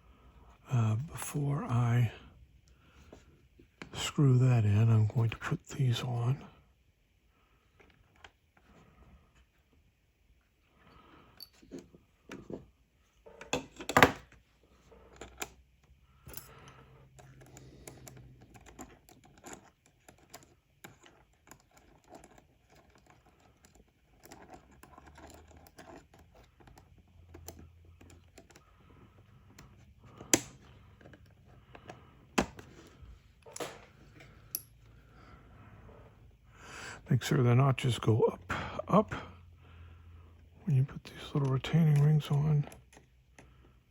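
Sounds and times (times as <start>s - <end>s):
light clicks and taps of parts: 15.1s - 32.7s, 33.4s - 34.9s.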